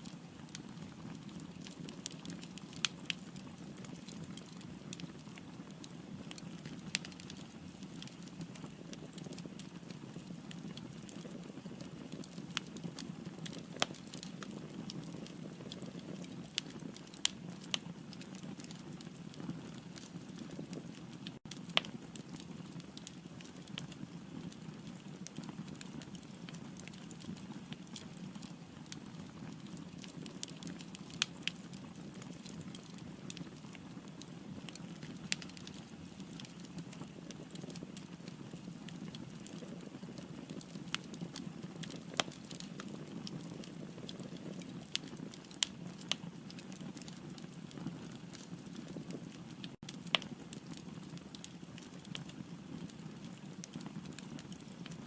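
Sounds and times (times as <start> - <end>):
firewood crackling and popping: 0.0 - 55.0.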